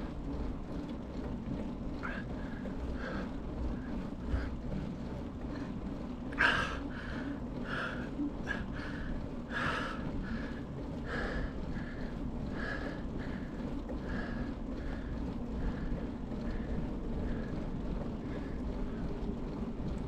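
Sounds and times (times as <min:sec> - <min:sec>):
steady low rumble: 0:00.0 - 0:20.0
person breathing hard: 0:06.4 - 0:16.0.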